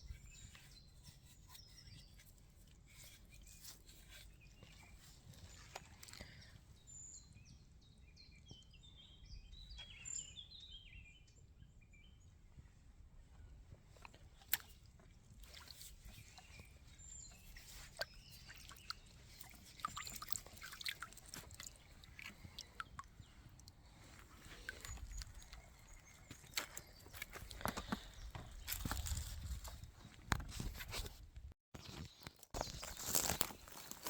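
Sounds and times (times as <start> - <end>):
small bird singing: 0.0 - 2.3, 2.9 - 12.3, 15.5 - 29.8
dry leaves and twigs rustling: 13.9 - 31.1, 31.8 - 34.0.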